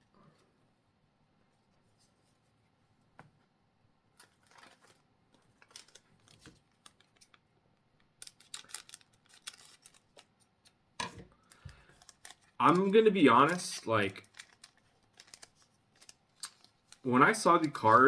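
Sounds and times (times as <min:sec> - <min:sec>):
trading cards clicking and rustling: 0:04.2 - 0:07.4, 0:08.0 - 0:18.0.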